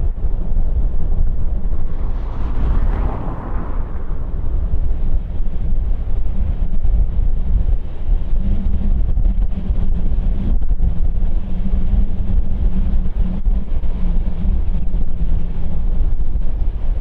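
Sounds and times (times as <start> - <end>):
jet engines rumbling: 0.0 - 8.3
wind buffeting microphone: 0.0 - 17.0.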